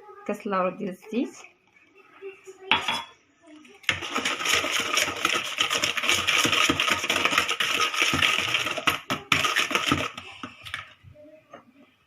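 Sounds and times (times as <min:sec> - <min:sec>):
hand whisk beating batter: 0:03.8 - 0:10.9.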